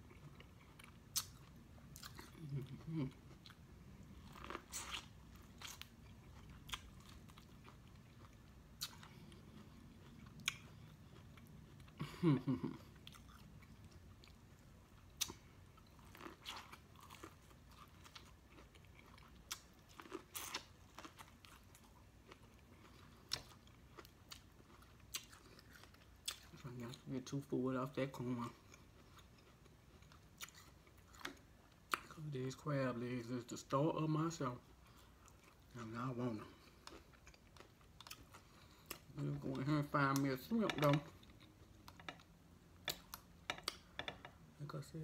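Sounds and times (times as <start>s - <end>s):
person chewing corn on the cob: 0.0s - 12.0s, 12.9s - 27.2s, 28.3s - 32.2s, 34.6s - 39.5s.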